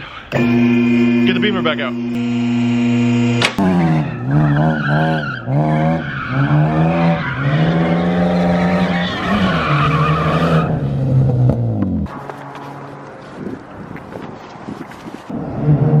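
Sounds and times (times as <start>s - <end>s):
car engine revving hard: 0.3s - 12.1s
tyres squealing: 4.1s - 10.8s.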